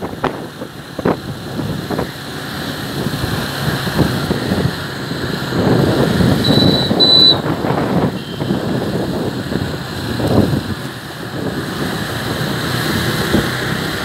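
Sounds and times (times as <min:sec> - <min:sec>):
motorcycle running: 0:00.0 - 0:14.0
wind buffeting microphone: 0:00.0 - 0:14.0
short high-pitched beeps: 0:06.4 - 0:07.4.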